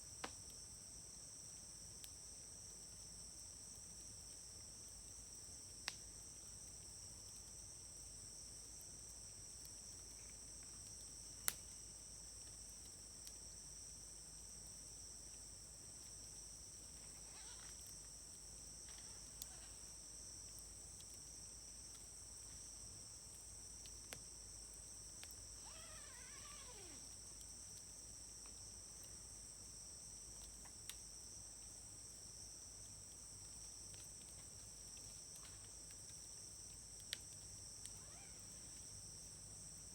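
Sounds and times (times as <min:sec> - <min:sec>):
insects trilling: 0:08.5 - 0:31.0, 0:34.3 - 0:39.9.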